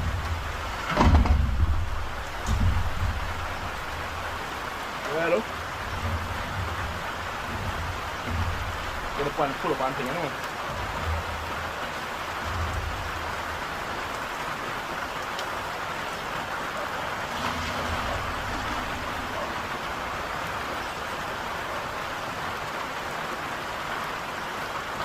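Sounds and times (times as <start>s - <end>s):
low rumbles on microphone: 0.0s - 4.8s, 5.5s - 14.1s
heavy rain: 0.0s - 25.0s.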